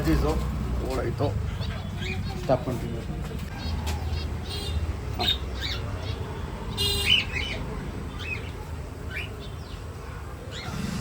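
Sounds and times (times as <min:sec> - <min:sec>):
budgerigars chirping: 0:01.1 - 0:02.7, 0:03.5 - 0:09.8
harsh bird call: 0:10.4 - 0:11.0.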